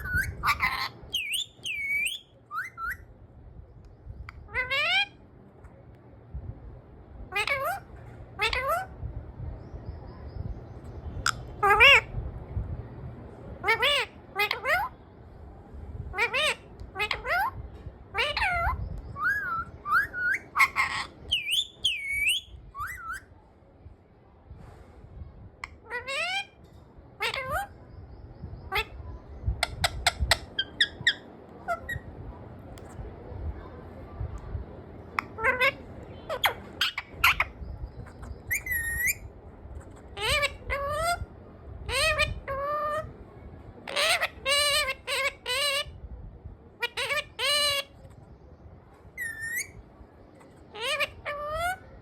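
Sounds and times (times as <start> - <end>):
parrot squawk: 0.0 - 3.1, 4.4 - 5.2, 7.3 - 8.9, 11.3 - 12.1, 13.6 - 15.0, 16.1 - 23.3, 25.6 - 26.6, 27.2 - 27.8, 28.7 - 29.0, 29.6 - 32.1, 35.2 - 39.3, 39.9 - 43.2, 43.8 - 46.0, 46.8 - 48.1, 49.2 - 49.8, 50.4 - 52.0
parrot whistling calls: 0.0 - 3.1, 18.2 - 23.3, 35.2 - 39.3, 49.2 - 49.8.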